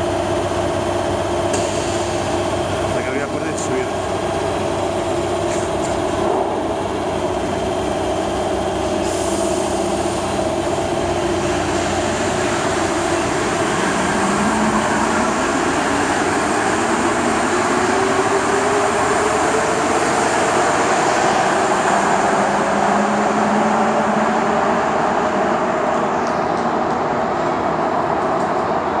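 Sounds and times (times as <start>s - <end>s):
metro train rumble: 0.0s - 29.0s
rising whine: 9.7s - 29.0s.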